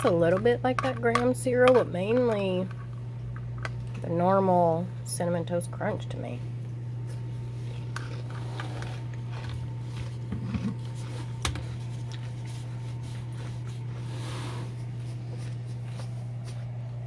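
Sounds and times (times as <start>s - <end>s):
eating and handling clicks: 0.0s - 4.1s.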